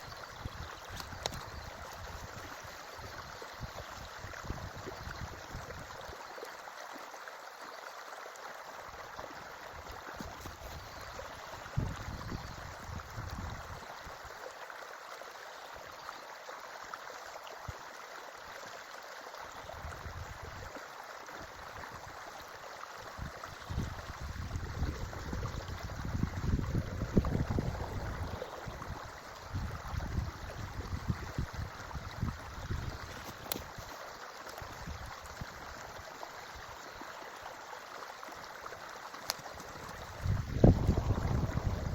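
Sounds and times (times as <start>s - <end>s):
creek water running: 0.0s - 41.9s
low rumbling: 26.2s - 31.1s.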